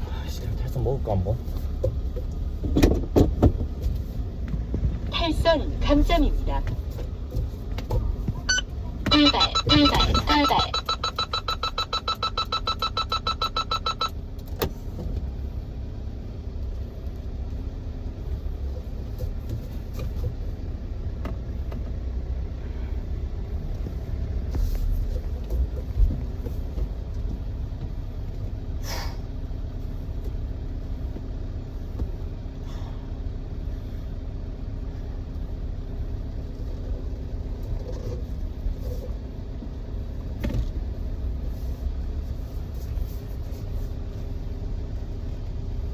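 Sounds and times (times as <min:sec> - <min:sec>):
car engine and road noise: 0:00.0 - 0:45.9
rapid electronic beeping: 0:08.5 - 0:14.2.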